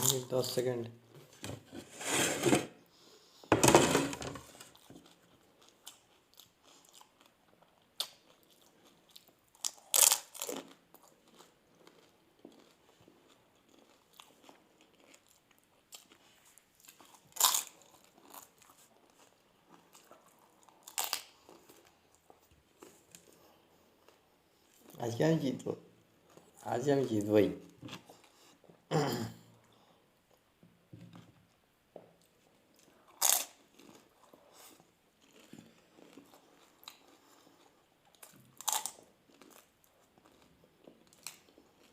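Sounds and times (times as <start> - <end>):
quiet chewing: 4.6 - 25.0, 31.1 - 41.9.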